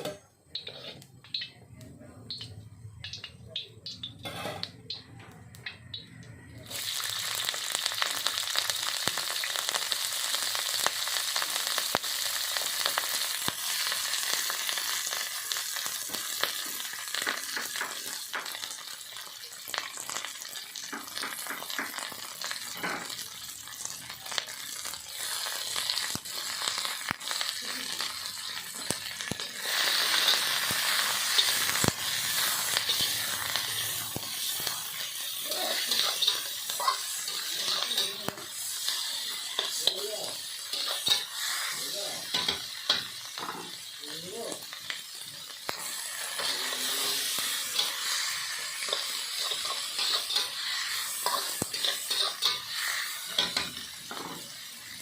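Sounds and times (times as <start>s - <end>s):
spatula scraping a pan: 0.0s - 1.4s, 4.2s - 4.7s, 45.8s - 54.4s
food sizzling in a pan: 0.0s - 55.0s.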